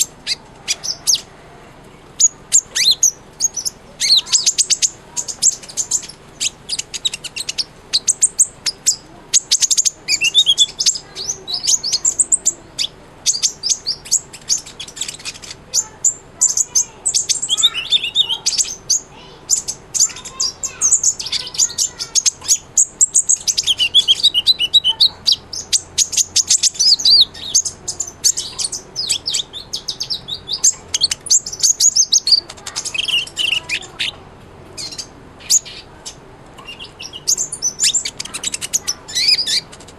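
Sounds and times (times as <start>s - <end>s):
sunbird singing high chirps and trills: 0.0s - 39.9s.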